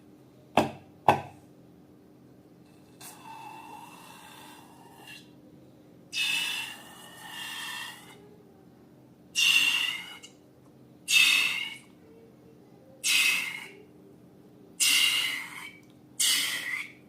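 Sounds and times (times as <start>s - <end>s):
squeaky hissing balloon air bursts: 9.4s - 10.2s, 11.1s - 11.8s, 13.0s - 13.7s, 16.2s - 16.9s.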